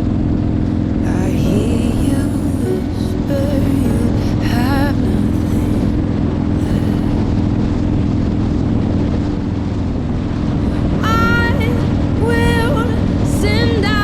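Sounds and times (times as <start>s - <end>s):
person singing: 0.7s - 7.4s, 10.6s - 14.0s.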